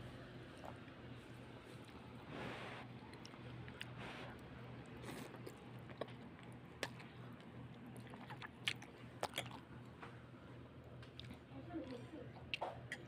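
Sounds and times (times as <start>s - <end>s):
person chewing: 3.0s - 9.7s, 11.0s - 13.0s.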